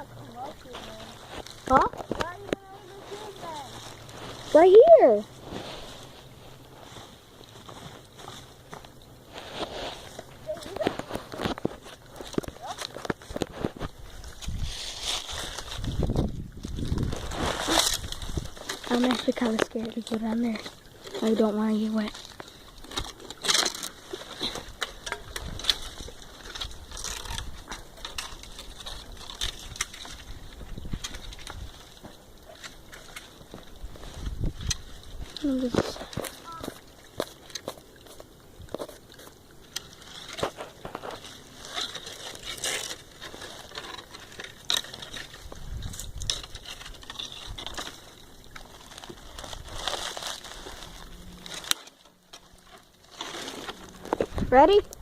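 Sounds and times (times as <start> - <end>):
leaves rustling: 0.0 - 55.0
footsteps crunching dry leaves: 0.7 - 19.8, 47.8 - 52.0.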